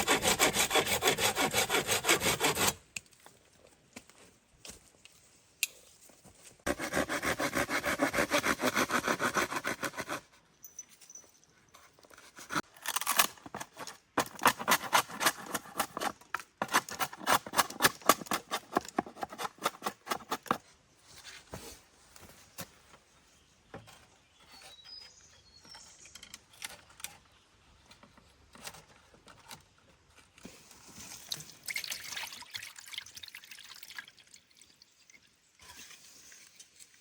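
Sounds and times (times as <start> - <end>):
saw cutting wood: 0.0 - 2.8, 6.7 - 10.2.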